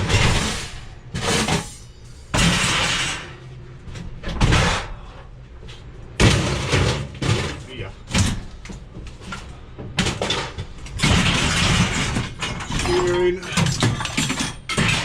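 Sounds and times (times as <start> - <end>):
objects knocking and clattering: 6.2 - 15.0.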